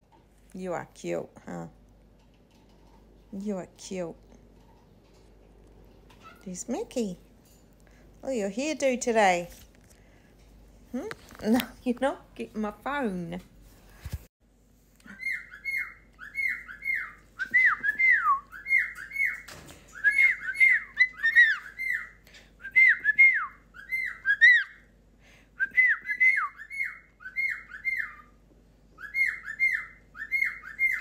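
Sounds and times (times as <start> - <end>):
bird squawky chirps: 15.1 - 17.2, 29.0 - 31.0.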